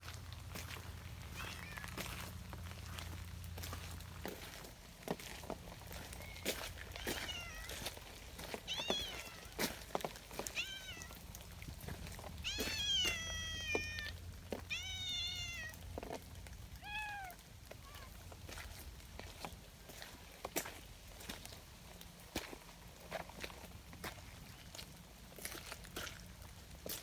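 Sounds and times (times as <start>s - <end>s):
cat meowing: 1.3s - 2.2s, 6.1s - 7.9s, 8.6s - 9.6s, 10.4s - 11.3s, 12.4s - 15.9s, 16.8s - 18.2s.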